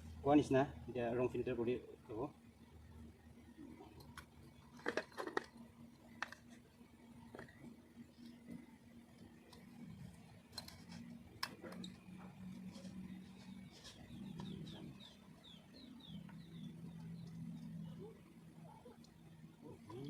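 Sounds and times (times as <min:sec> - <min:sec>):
bird cooing: 0:14.1 - 0:15.2, 0:15.8 - 0:20.0.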